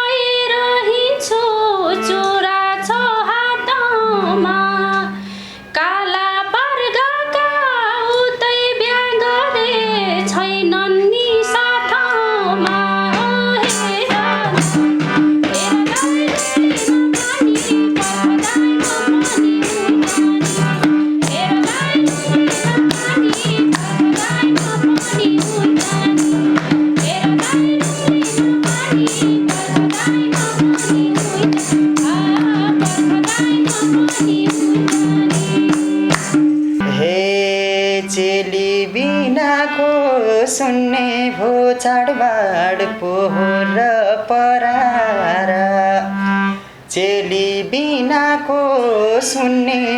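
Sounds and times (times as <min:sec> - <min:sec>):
folk melody with bending pitch: 0:00.0 - 0:49.9
sustained chords: 0:09.2 - 0:38.4
held bass notes: 0:12.4 - 0:37.3
fast hand-drum beat: 0:13.2 - 0:36.8.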